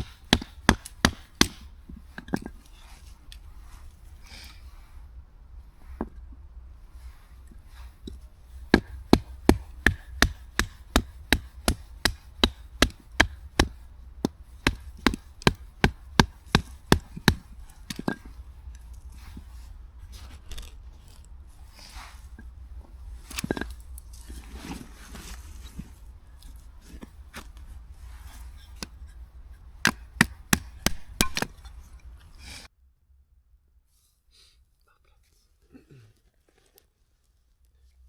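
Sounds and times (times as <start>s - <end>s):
chopping strikes on wood: 0.0s - 1.7s, 8.7s - 18.2s, 29.8s - 31.6s.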